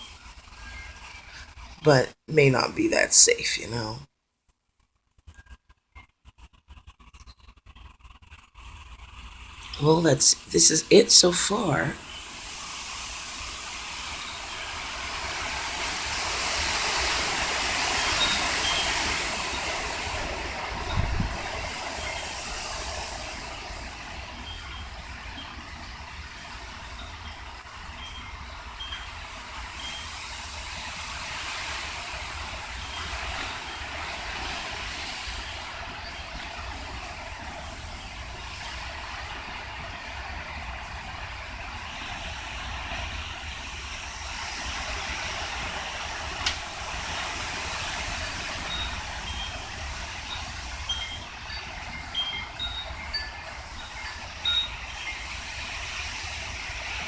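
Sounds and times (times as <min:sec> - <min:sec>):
strong wind rumbling on microphone: 0:17.3 - 0:24.8
wind chimes ringing: 0:48.6 - 0:55.6.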